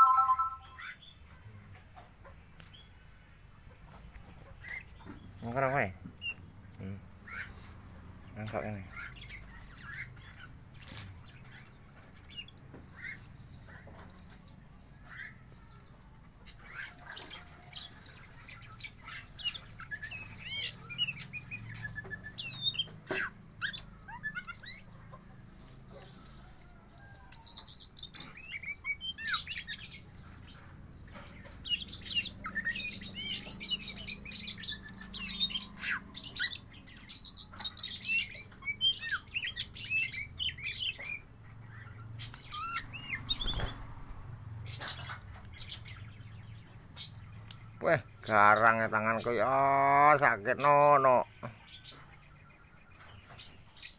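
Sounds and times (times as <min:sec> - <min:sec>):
bird chirping: 0:00.0 - 0:01.3, 0:03.9 - 0:53.9.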